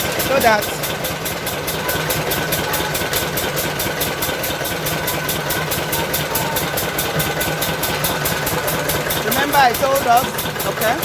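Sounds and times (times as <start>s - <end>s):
pulsing mill machine hum: 0.0s - 11.0s.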